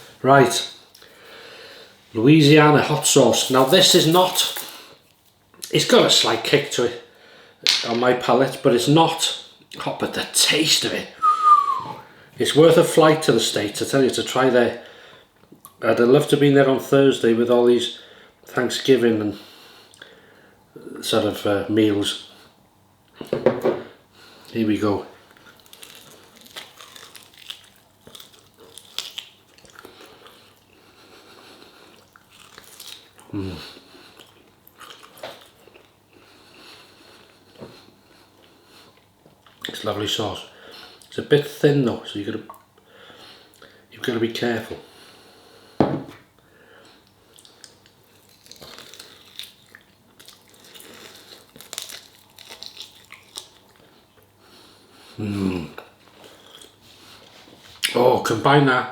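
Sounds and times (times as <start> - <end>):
person chewing food: 25.3 - 39.7, 46.9 - 54.3, 55.8 - 56.8.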